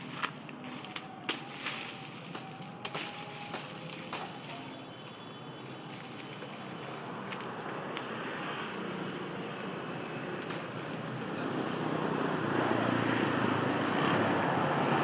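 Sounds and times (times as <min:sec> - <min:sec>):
sugarcane cracking and snapping: 0:00.0 - 0:04.8
steady background noise: 0:00.0 - 0:15.0.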